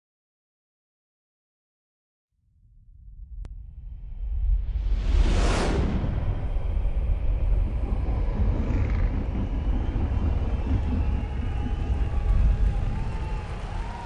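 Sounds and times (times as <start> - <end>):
motorcycle engine rumbling: 6.6 - 14.0.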